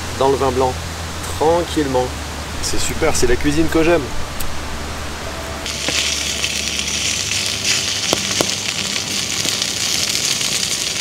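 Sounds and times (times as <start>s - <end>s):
food sizzling in a pan: 5.6s - 11.0s.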